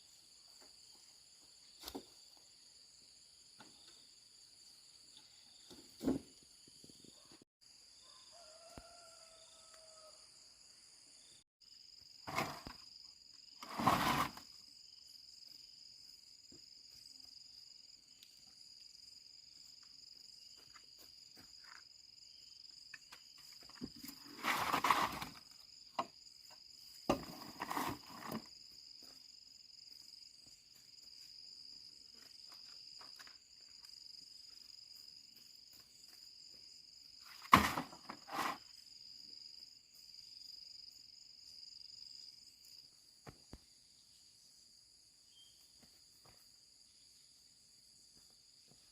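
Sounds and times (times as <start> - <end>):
short knocks and scrapes: 12.3 - 12.8, 13.6 - 14.5, 23.6 - 25.4, 27.1 - 28.5, 37.4 - 38.7.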